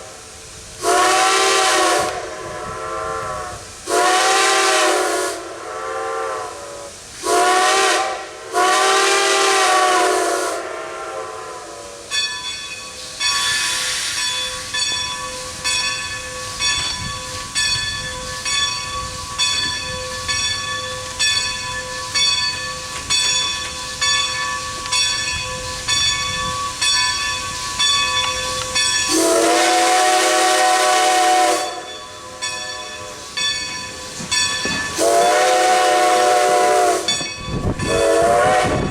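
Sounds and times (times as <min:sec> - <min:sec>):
steam locomotive chuffing: 0:00.0 - 0:38.9
steam whistle blasts: 0:00.8 - 0:12.2, 0:29.0 - 0:32.4, 0:35.0 - 0:38.9.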